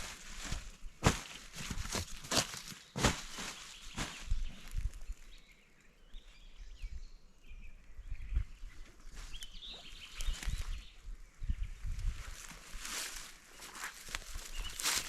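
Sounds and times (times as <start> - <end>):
rustling: 0.0 - 4.8, 12.1 - 15.0
bird chirping: 2.7 - 12.0, 14.3 - 15.0.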